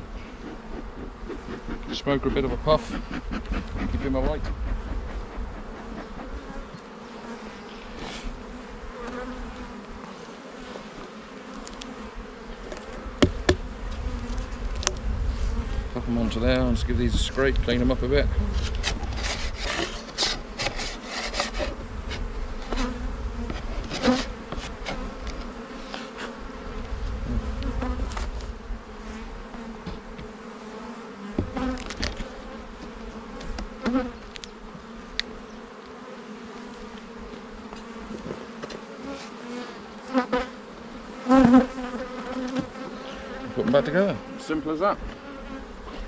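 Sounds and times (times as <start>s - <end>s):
honeybees buzzing: 0.0s - 46.0s
scraping and clicking strokes: 18.6s - 26.3s.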